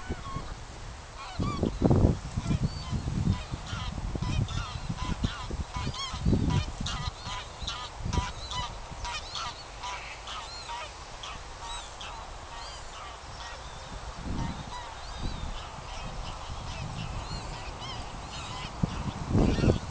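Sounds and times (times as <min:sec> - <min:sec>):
flock of birds calling: 0:00.0 - 0:00.6, 0:01.2 - 0:19.9.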